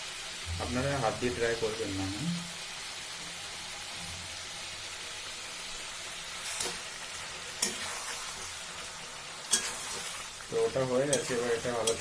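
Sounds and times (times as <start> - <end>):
food sizzling in hot oil: 0.0 - 12.0
utensil clicking against pan: 11.1 - 12.0.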